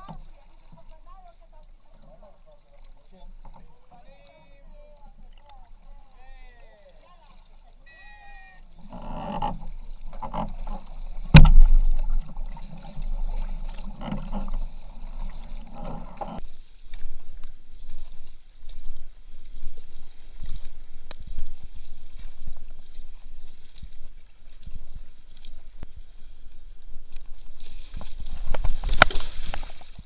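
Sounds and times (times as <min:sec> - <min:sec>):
paddle strokes in water: 0:00.0 - 0:30.0
sharp knock: 0:11.3 - 0:11.8.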